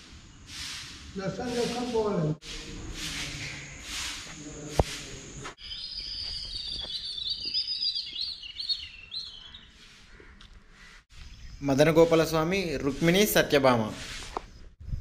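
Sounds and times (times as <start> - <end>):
small birds chirping: 2.9 - 14.8.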